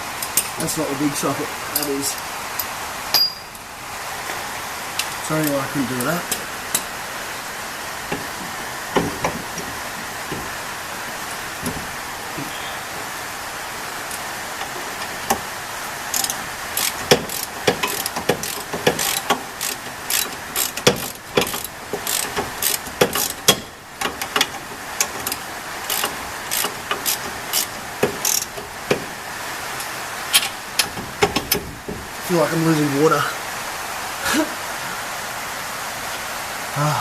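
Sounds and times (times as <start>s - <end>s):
rain hissing: 0.0s - 37.0s
socket ratchet clicking: 16.1s - 29.0s.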